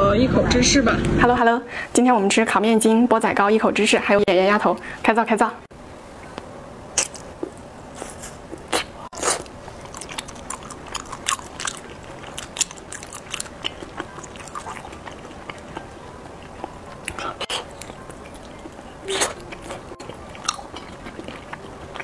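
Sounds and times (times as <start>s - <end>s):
biting and chewing: 7.0s - 22.0s.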